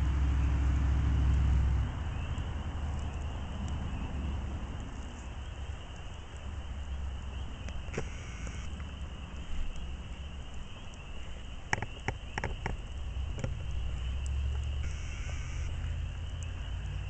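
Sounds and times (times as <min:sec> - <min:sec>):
campfire crackling: 0:00.0 - 0:17.0
sharp pops and snaps: 0:07.1 - 0:17.0.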